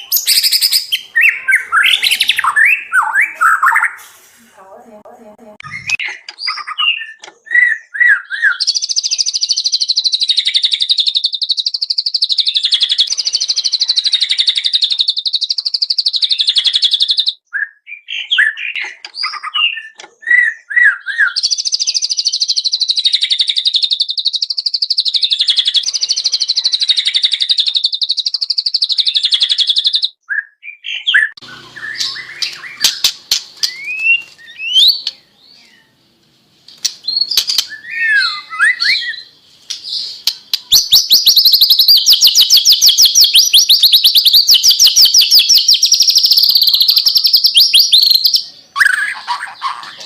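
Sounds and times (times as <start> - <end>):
songbird singing: 0.0 - 4.7, 5.6 - 50.0.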